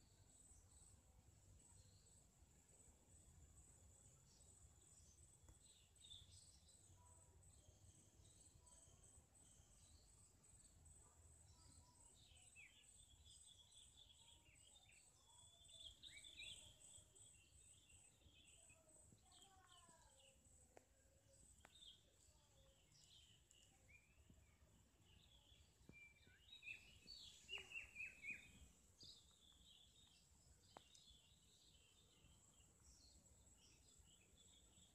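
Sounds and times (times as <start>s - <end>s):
birds chirping: 21.4s - 34.9s.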